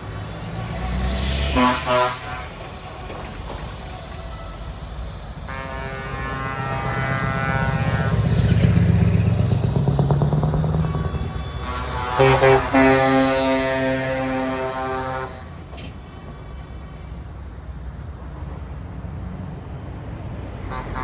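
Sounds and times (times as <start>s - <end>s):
heavy trucks driving past: 0.0s - 21.0s
air horn blasts: 1.5s - 2.8s, 5.4s - 9.2s, 10.7s - 15.9s, 20.7s - 21.0s
horn tone: 1.5s - 2.8s, 5.4s - 9.3s, 10.7s - 15.9s, 20.7s - 21.0s.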